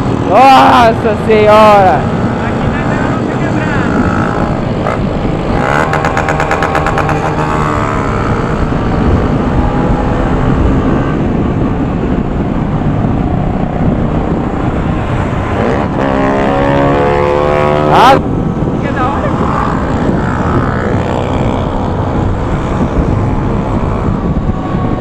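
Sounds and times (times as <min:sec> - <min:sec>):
motorcycle engine accelerating: 0:01.6 - 0:18.3, 0:18.9 - 0:25.0.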